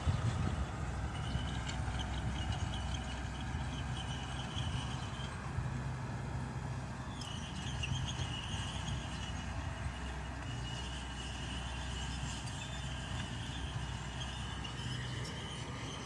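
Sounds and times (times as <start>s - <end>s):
bulldozer diesel engine running: 0.0s - 16.0s
thin high squeal: 7.1s - 16.0s.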